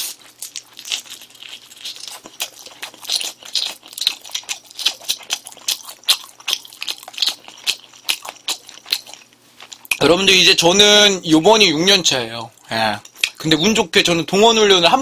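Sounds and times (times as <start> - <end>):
crunchy chewing: 0.0 - 10.1.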